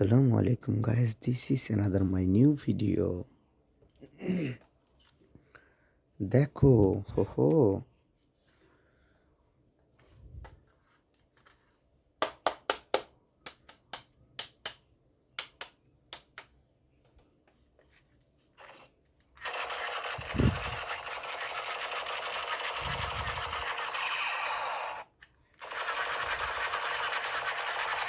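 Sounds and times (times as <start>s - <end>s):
toy gun automatic-fire rattle: 18.6s - 28.0s.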